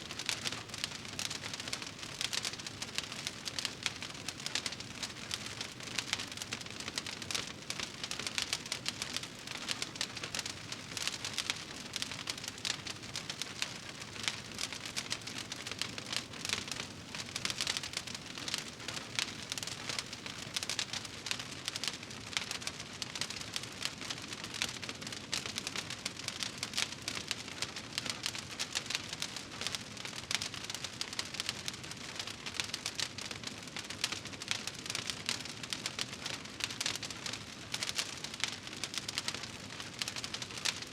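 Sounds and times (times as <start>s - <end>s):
wood fire crackling: 0.0s - 21.4s, 30.4s - 40.9s.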